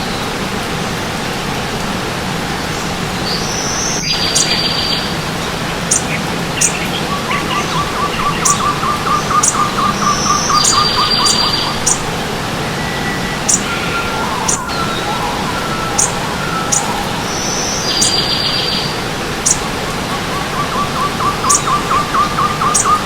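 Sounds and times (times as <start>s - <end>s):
running stream: 0.0s - 23.0s
fast low bird trill: 2.7s - 23.0s
high bird call with buzzy trill: 5.9s - 23.0s.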